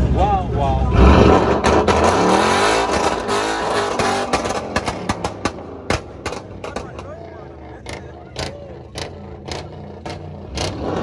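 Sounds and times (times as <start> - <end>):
sports car engine revving: 0.0 - 11.0
sharp exhaust pops: 2.8 - 7.2.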